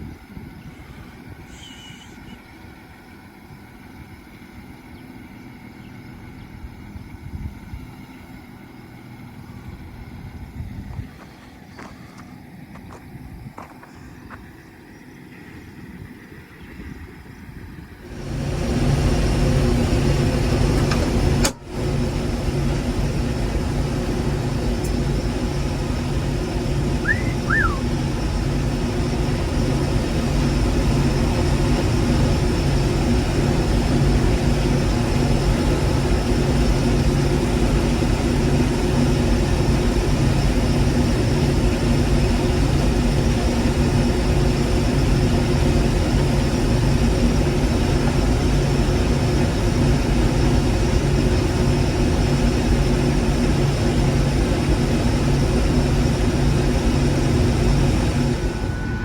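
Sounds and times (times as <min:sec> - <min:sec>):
combine harvester engine hum: 0:00.0 - 0:59.0
short high chirps: 0:27.0 - 0:27.8.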